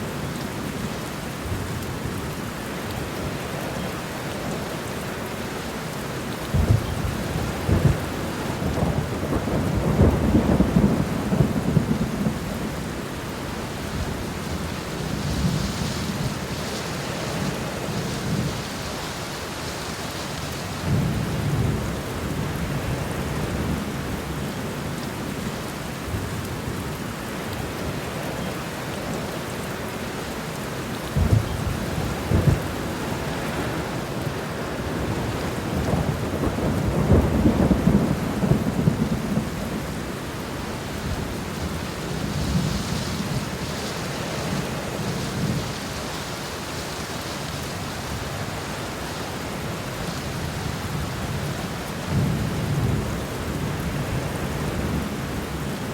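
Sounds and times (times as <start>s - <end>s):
steady rain falling: 0.0s - 55.9s
thunder rumbling: 6.5s - 18.8s, 31.2s - 47.2s.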